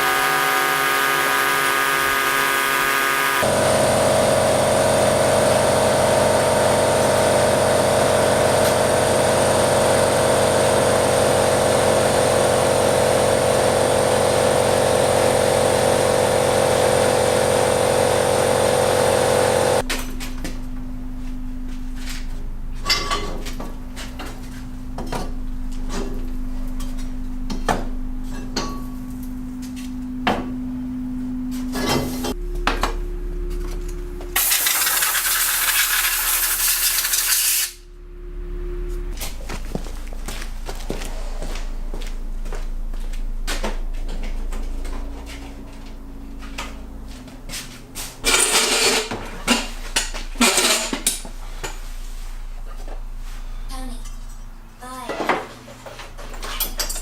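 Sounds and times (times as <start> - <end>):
steady hum: 19.6 - 54.8.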